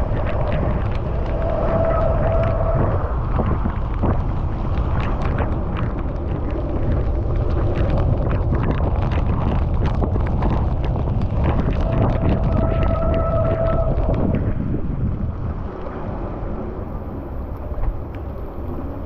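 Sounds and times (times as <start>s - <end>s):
raindrops ticking: 0.0s - 14.6s
wind buffeting microphone: 0.0s - 19.0s.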